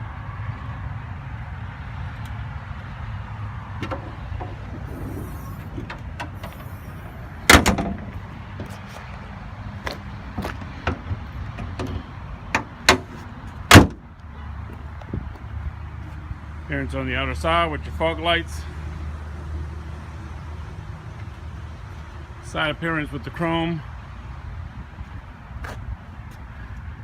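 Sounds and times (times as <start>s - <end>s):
car hood slamming: 3.8s - 8.2s, 13.7s - 14.0s
metal clunks: 3.8s - 8.7s.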